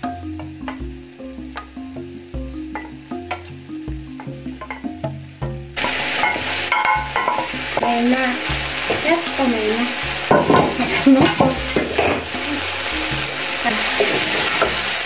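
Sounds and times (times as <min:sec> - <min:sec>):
fish frying loudly in sauce: 0:05.8 - 0:15.0.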